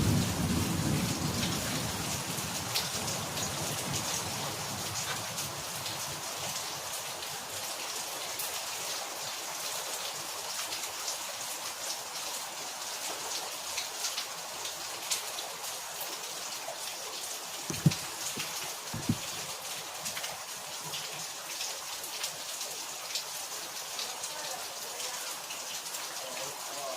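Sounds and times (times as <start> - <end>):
rain falling: 0.0 - 26.9
low thud: 17.7 - 19.4.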